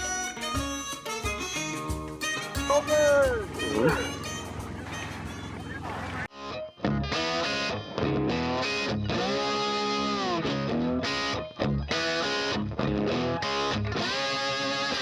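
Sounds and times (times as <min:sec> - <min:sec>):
distorted electric guitar: 0:06.4 - 0:15.0.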